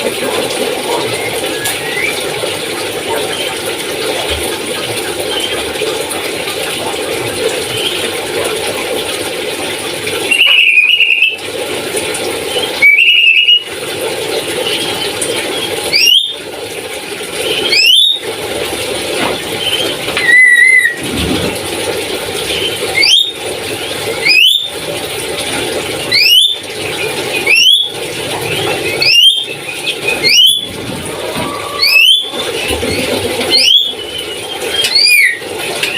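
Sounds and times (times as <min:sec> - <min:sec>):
parrot squealing calls: 0:20.2 - 0:21.0, 0:29.0 - 0:29.5, 0:30.2 - 0:30.7, 0:31.4 - 0:32.4, 0:33.5 - 0:34.1, 0:34.7 - 0:35.9.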